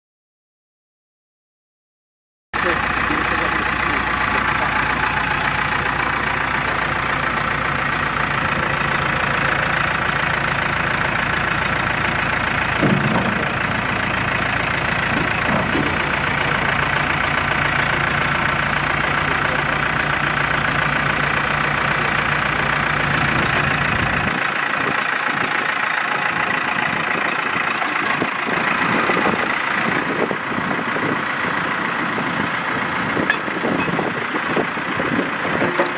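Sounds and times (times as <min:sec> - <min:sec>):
diesel engine idling: 0:02.6 - 0:35.9
short knocks: 0:12.5 - 0:17.0.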